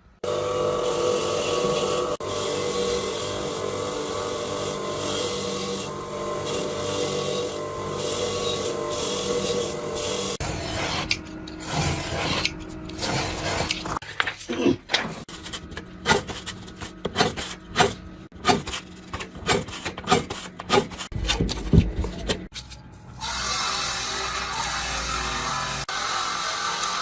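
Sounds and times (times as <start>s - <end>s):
hand tool scraping and rubbing: 8.3s - 22.8s.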